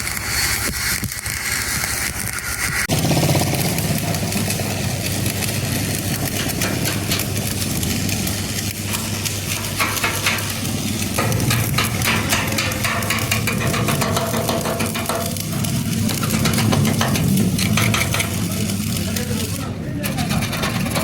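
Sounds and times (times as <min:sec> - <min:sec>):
welding arc crackling: 0:00.0 - 0:21.0
low hum: 0:02.9 - 0:19.3.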